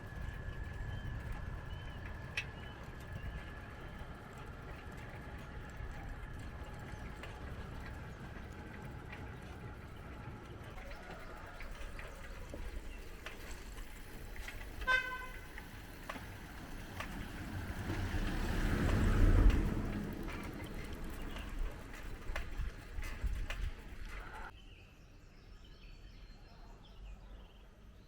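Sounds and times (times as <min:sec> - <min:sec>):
road traffic rumble: 0:00.0 - 0:24.6
vehicle passing close: 0:13.6 - 0:22.6
vehicle horn toot: 0:14.8 - 0:15.6.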